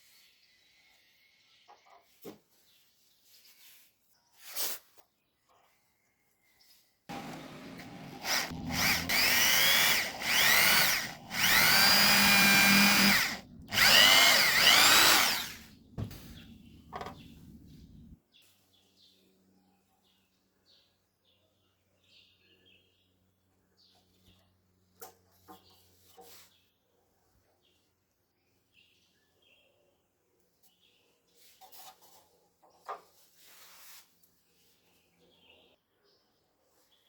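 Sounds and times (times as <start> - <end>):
power drill running in bursts: 7.1 - 18.2.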